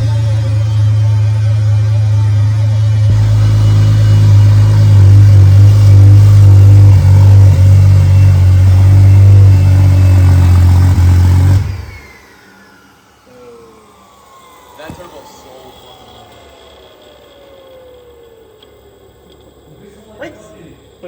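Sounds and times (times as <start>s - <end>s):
car engine running loudly: 0.0s - 12.0s.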